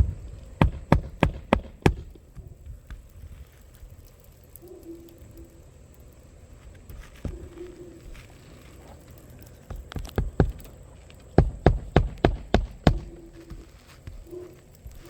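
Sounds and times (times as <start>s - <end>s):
hammer nailing on roof: 0.6s - 2.2s, 9.7s - 10.7s, 11.4s - 13.6s.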